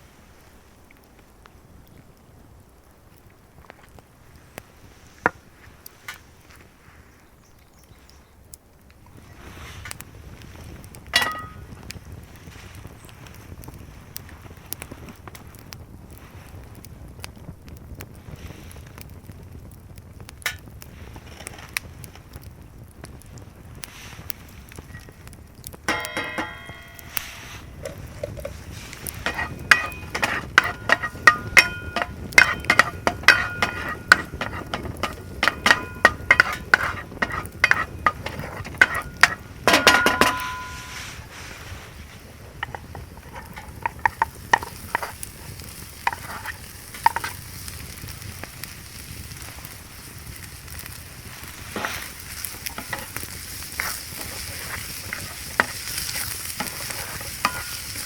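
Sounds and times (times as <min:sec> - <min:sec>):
food sizzling: 0:09.1 - 0:15.5, 0:23.0 - 0:58.0
metal utensil clinking in pan: 0:11.2 - 0:11.6, 0:25.9 - 0:27.6, 0:29.2 - 0:41.0, 0:52.7 - 0:53.2, 0:53.8 - 0:58.0.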